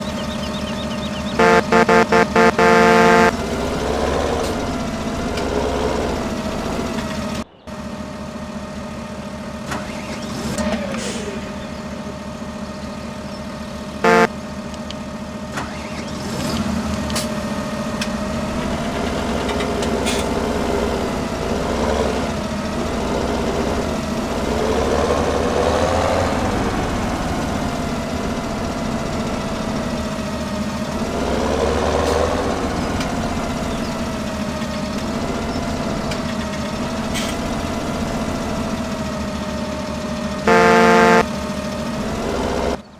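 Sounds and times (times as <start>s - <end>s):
pulsing horn beep: 1.4s - 3.4s, 14.0s - 14.3s, 40.5s - 41.2s
tractor engine revving: 1.4s - 7.4s, 14.0s - 14.3s, 40.5s - 41.2s.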